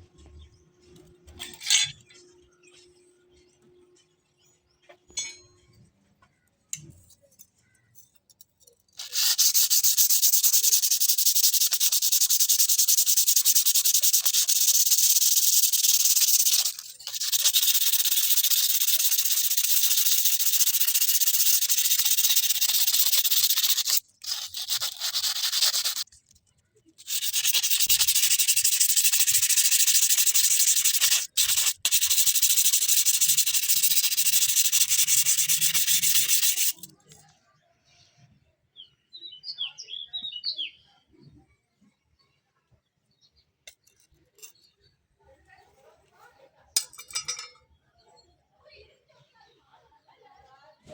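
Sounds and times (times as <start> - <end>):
grinder abrading steel blade: 13.0 - 26.0, 27.0 - 36.9.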